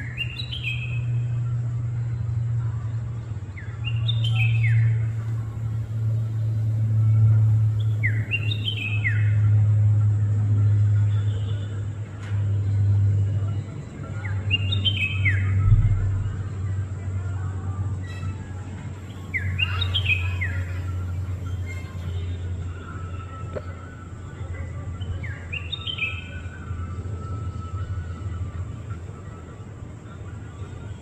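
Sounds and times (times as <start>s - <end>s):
bird singing whistled notes: 0.0s - 9.8s, 12.5s - 16.8s, 17.9s - 31.0s
steady low rumble: 15.4s - 18.0s
dull thump: 15.6s - 16.4s.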